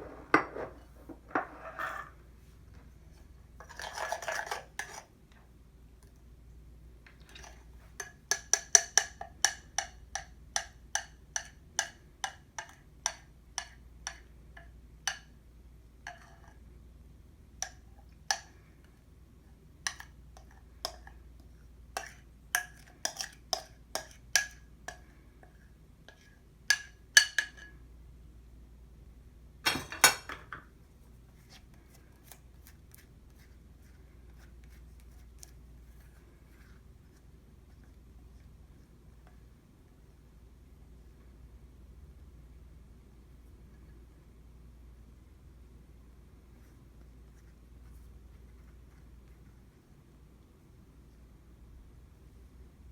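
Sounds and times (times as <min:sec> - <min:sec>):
utensil clinking against bowl: 0:29.7 - 0:30.6.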